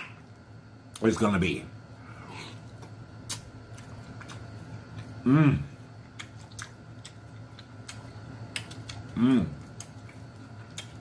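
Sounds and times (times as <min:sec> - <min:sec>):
man chewing: 0:02.0 - 0:11.0
man humming mmm: 0:05.2 - 0:05.8, 0:09.1 - 0:09.6.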